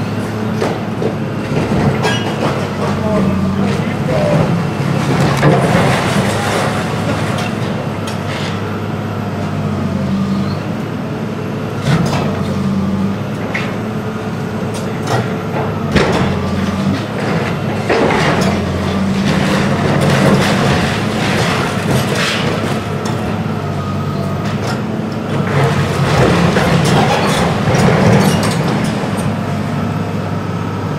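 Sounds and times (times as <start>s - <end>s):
demolition machinery engine hum: 0.0s - 30.9s
knocks and crashes: 4.3s - 7.6s, 15.9s - 22.9s.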